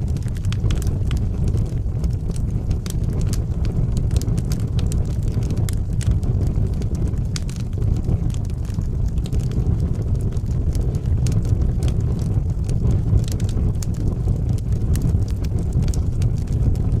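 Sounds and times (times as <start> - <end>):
burning logs crackling: 0.0 - 17.0
fire rumbling: 0.0 - 17.0.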